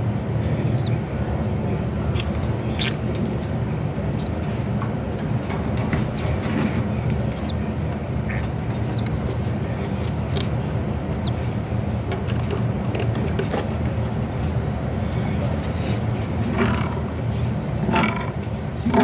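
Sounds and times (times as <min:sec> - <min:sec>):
bird chicks squeaking: 0:00.7 - 0:01.0, 0:04.0 - 0:06.4, 0:07.2 - 0:07.7, 0:08.4 - 0:09.3, 0:11.0 - 0:11.4.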